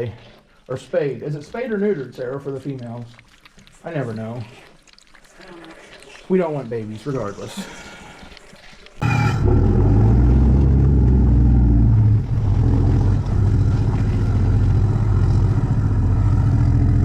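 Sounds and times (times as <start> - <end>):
vehicle driving drone: 9.0 - 17.0.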